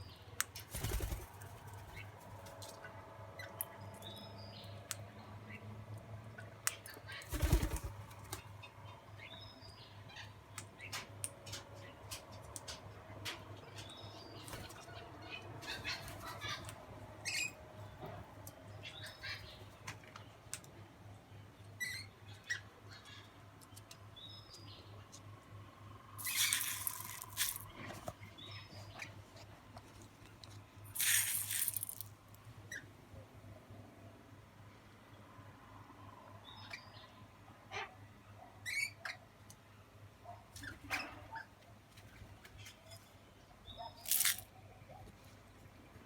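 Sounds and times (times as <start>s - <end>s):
small birds chirping: 0.0s - 5.7s, 6.3s - 32.1s, 42.6s - 46.0s.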